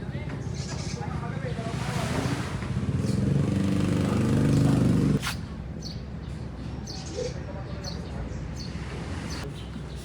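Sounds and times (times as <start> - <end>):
engine running: 1.8 - 5.2.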